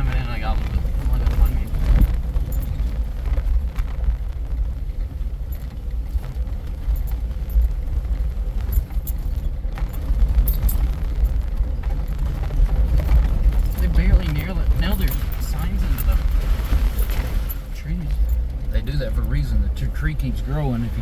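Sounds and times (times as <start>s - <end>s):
vehicle engine and drivetrain rumble: 0.0s - 21.0s.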